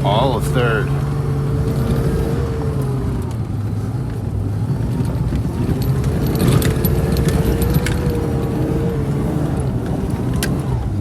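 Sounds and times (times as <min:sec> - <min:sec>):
vehicle engine under load: 0:00.0 - 0:11.0
light metallic rattling: 0:04.9 - 0:09.8.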